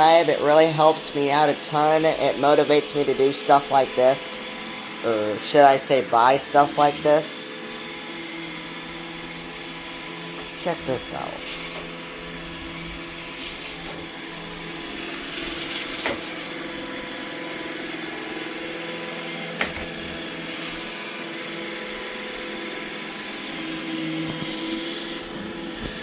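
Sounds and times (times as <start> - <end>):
robot vacuum humming: 0.0 - 26.0.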